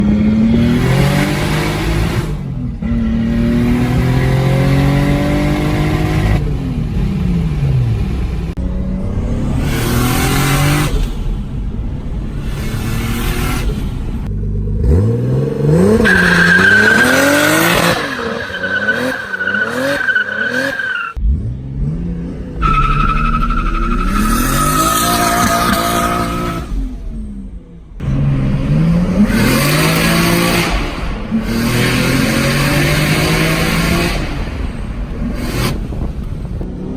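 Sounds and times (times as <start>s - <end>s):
car engine accelerating hard: 0.0s - 36.9s
high-pitched turbo whine: 22.6s - 27.3s.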